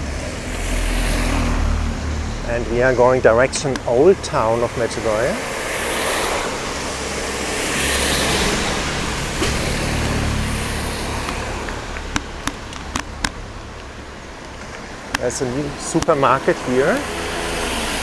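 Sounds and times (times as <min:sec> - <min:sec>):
low engine rumble: 0:00.0 - 0:18.0
tyre hiss on wet road: 0:00.0 - 0:18.0
sharp clicks: 0:11.2 - 0:16.3.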